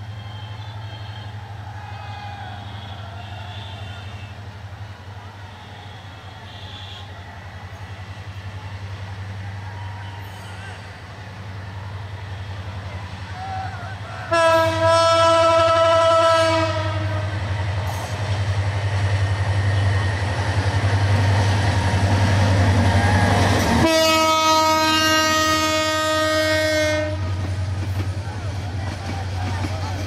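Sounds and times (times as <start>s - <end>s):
diesel locomotive engine rumbling: 0.0s - 30.0s
train horn blast: 2.6s - 4.5s, 5.5s - 7.1s, 14.2s - 17.6s, 23.6s - 27.6s
coaches clattering over rails: 25.1s - 30.0s.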